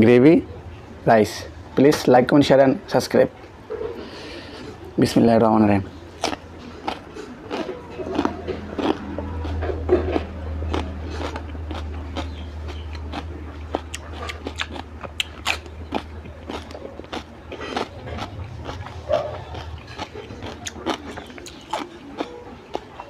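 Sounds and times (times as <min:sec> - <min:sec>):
man chewing crunchy cucumber: 0:05.9 - 0:23.0.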